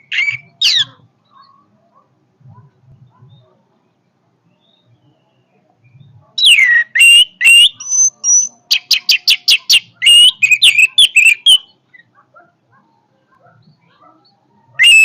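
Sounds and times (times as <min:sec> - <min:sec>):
thrush singing varied whistles: 0:06.4 - 0:11.8, 0:14.8 - 0:15.0.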